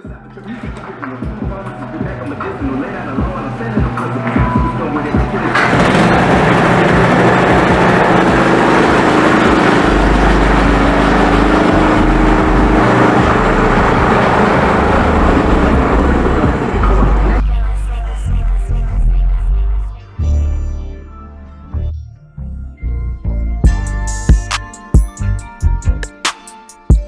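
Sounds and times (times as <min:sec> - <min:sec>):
loud motor running: 0:00.0 - 0:17.5.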